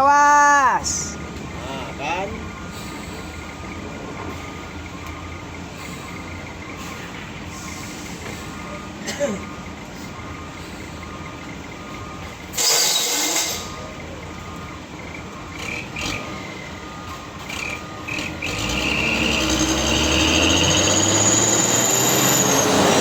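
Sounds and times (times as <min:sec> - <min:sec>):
truck engine drone under load: 0:00.0 - 0:23.0
high-pitched squeal: 0:12.5 - 0:13.9, 0:17.6 - 0:23.0.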